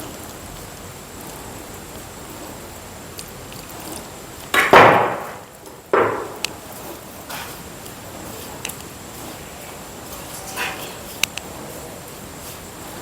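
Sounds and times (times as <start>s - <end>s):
dough slaps: 4.5s - 6.5s.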